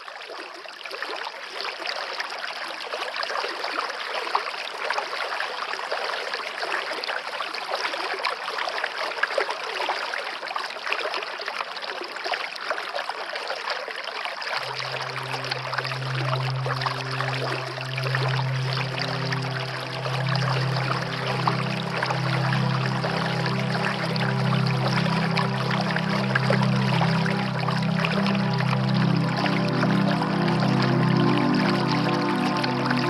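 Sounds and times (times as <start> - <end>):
stream water trickling: 0.0 - 33.0
low musical drone: 14.6 - 33.0.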